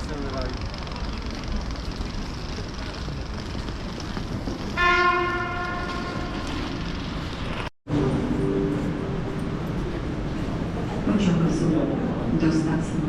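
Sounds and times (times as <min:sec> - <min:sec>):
railway station platform noise: 0:00.0 - 0:13.0
train horn blast: 0:04.8 - 0:06.5.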